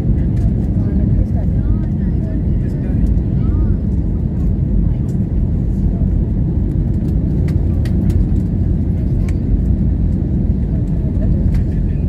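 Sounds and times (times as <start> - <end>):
airliner engines rumbling: 0.0 - 12.0.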